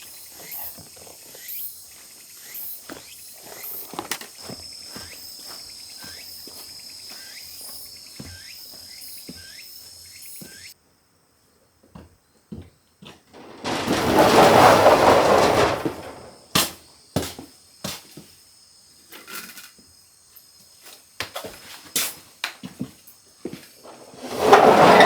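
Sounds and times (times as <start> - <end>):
rustling noise: 13.3 - 16.5, 23.8 - 25.0.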